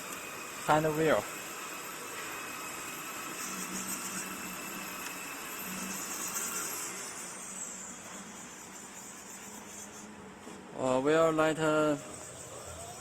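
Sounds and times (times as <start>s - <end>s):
machine router whirring: 0.0s - 10.0s.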